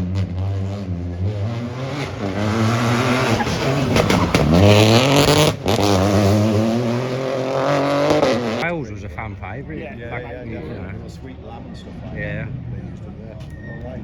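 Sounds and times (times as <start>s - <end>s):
rally car engine revving: 0.0s - 8.6s.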